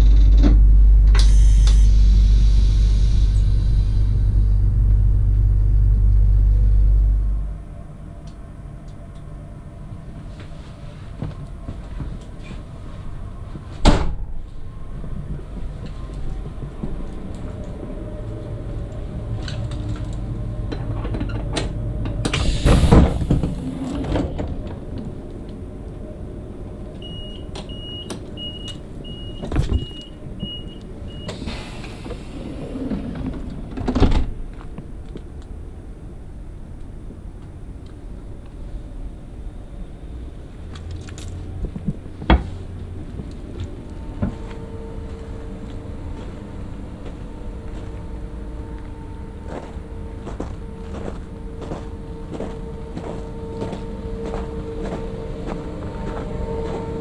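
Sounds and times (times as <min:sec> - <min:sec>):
train low rumble: 0:00.0 - 0:57.0
loud air hiss: 0:01.2 - 0:04.3, 0:22.4 - 0:23.8, 0:31.3 - 0:32.9.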